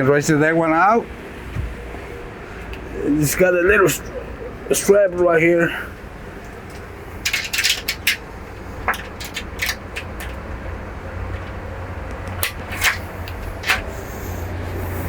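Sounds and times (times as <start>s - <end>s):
clicks and knocks of strap fittings: 6.4s - 14.3s.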